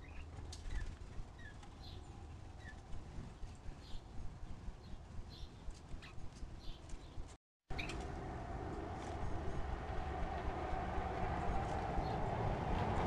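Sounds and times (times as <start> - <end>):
faint bird chirps: 0.0 - 2.8, 4.8 - 8.0
low outdoor rumble: 7.7 - 13.0
hum: 7.8 - 13.0.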